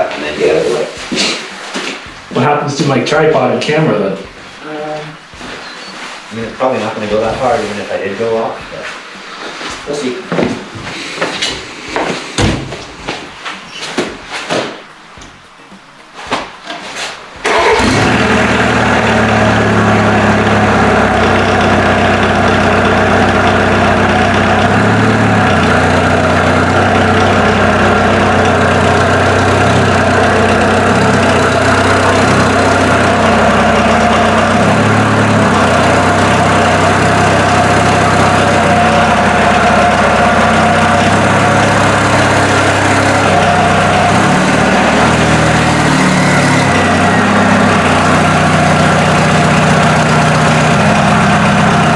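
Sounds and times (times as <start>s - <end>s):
diesel engine idling: 17.4s - 51.9s.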